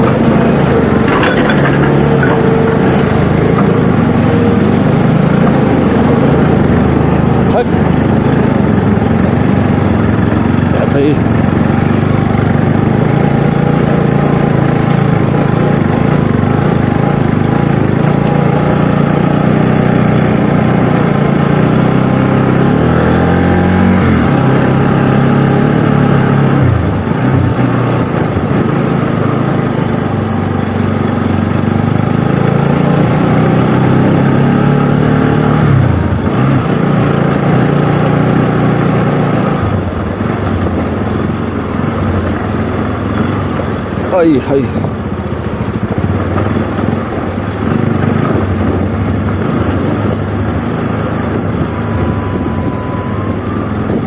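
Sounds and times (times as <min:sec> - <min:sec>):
motorcycle engine running: 0:00.0 - 0:54.0
road and wind noise: 0:00.0 - 0:54.0.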